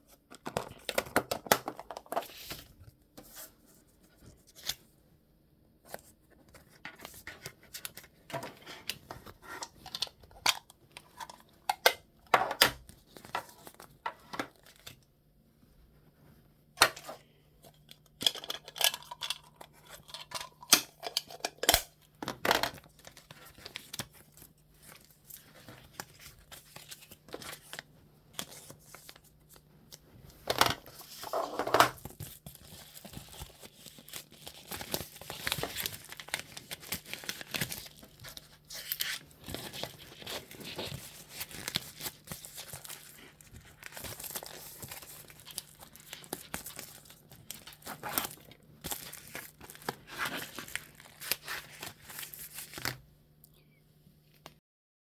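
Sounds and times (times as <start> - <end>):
crinkling and tearing: 32.0 - 53.0.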